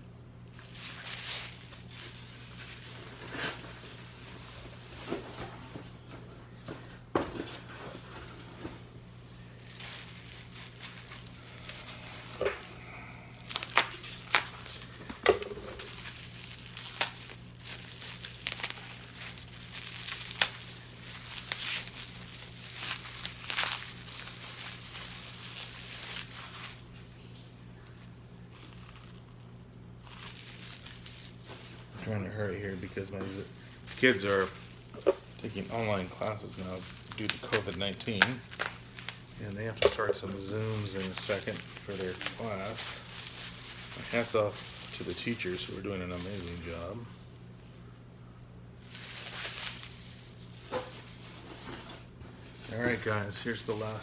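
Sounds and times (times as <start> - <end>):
steady low hum: 0.0 - 54.0
packaging crinkling and rustling: 0.5 - 48.0, 48.6 - 54.0
tape tearing: 9.6 - 27.0, 30.0 - 32.0, 32.7 - 46.8, 48.8 - 51.8.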